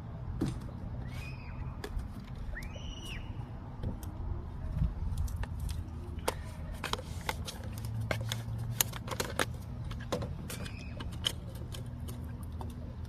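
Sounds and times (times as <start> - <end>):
hands handling objects: 4.8 - 13.0.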